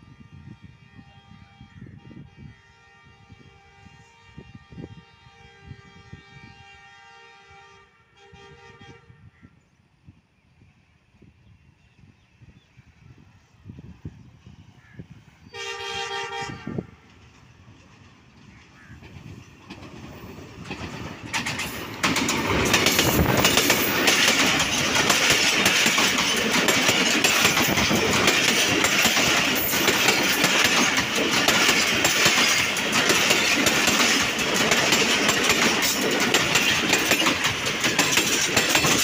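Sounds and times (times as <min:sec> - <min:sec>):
train passing rumble: 0:00.0 - 0:39.0
wheels clattering over rails: 0:17.8 - 0:39.0.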